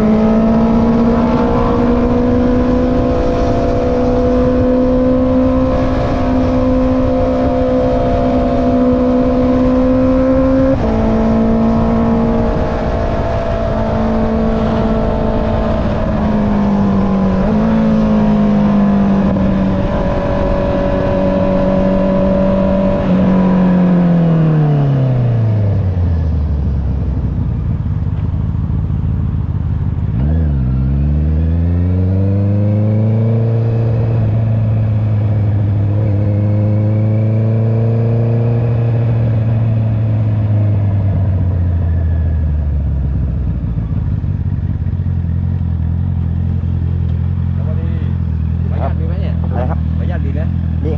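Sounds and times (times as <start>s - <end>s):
wind rush: 0.0s - 25.8s
motorcycle engine revving: 0.0s - 50.9s.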